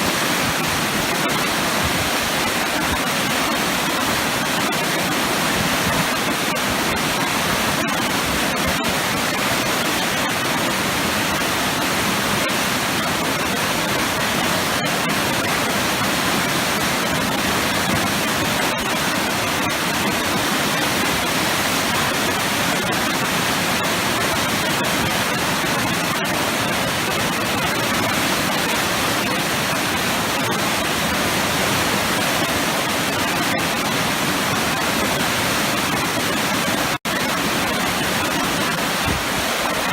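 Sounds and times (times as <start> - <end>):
waterfall crashing into pool: 0.0 - 39.9.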